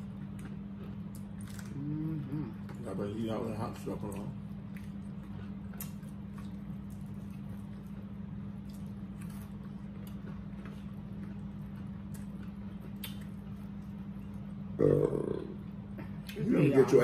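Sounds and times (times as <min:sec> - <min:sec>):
low hum: 0:00.0 - 0:17.0
people chewing fried chicken: 0:00.0 - 0:17.0.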